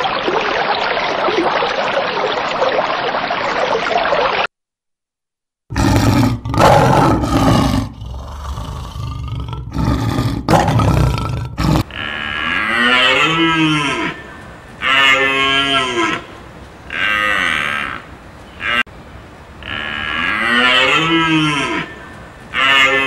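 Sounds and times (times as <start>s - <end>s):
long animal calls: 5.7s - 16.3s, 19.6s - 23.0s.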